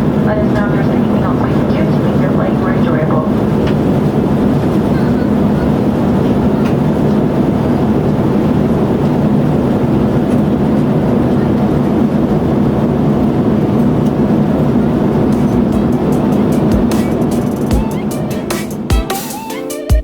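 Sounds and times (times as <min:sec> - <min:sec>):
airliner cabin engine noise: 0:00.0 - 0:20.0.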